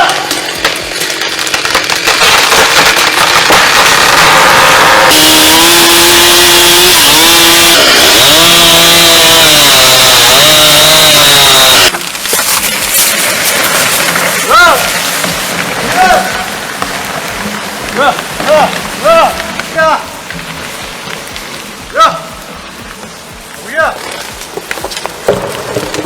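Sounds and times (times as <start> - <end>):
chainsaw cutting wood: 0.0 - 18.8.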